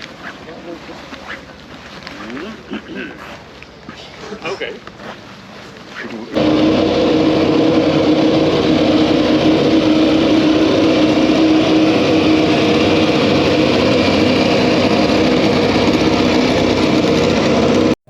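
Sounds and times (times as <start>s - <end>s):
engine running loudly: 6.4s - 18.0s.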